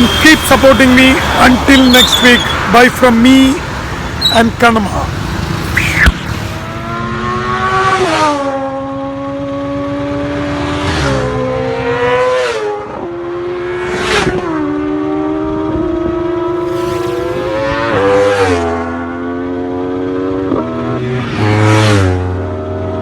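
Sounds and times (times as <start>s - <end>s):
motorbike engine accelerating: 3.6s - 8.4s.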